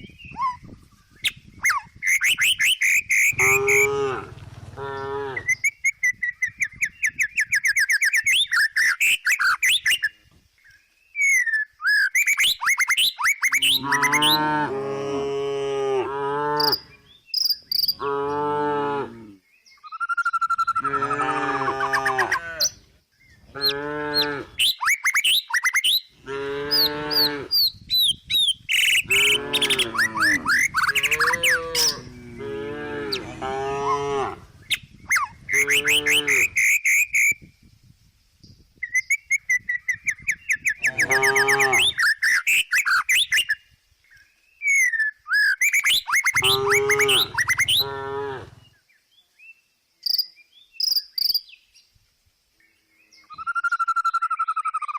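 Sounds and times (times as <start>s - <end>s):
small birds chirping: 0.0s - 14.5s, 16.6s - 18.4s, 21.9s - 32.5s, 34.6s - 52.0s
cow mooing: 3.3s - 5.5s, 13.8s - 17.0s, 20.9s - 22.7s, 23.6s - 24.6s, 26.2s - 27.5s, 29.1s - 34.5s, 35.5s - 36.6s, 40.9s - 42.0s, 46.4s - 48.7s.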